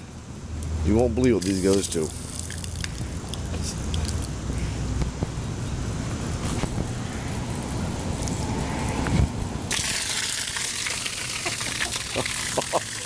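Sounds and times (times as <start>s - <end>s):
water spewing from a pipe: 1.4s - 4.4s, 9.7s - 13.0s.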